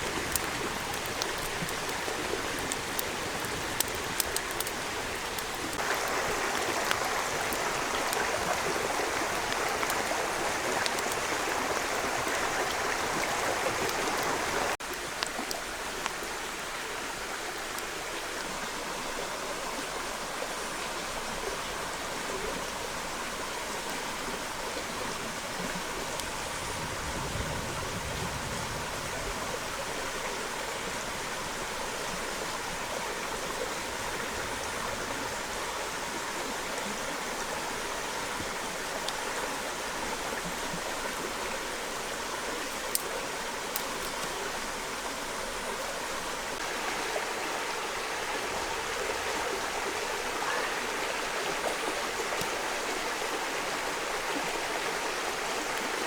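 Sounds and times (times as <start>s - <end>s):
stream flowing: 0.0s - 56.0s
faint sharp clicks: 42.7s - 44.4s.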